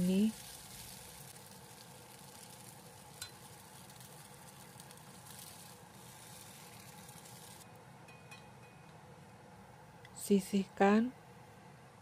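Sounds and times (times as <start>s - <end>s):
tofu sizzling in oil: 0.0s - 7.7s.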